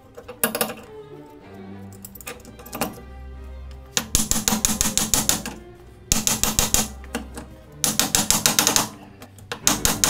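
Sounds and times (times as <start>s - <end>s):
background music: 0.0s - 10.0s
socket ratchet clicking: 4.0s - 7.0s, 7.8s - 8.9s, 9.5s - 10.0s.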